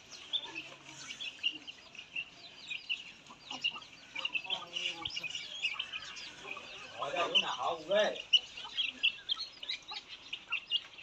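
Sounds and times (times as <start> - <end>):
many birds chirping: 0.0 - 11.0.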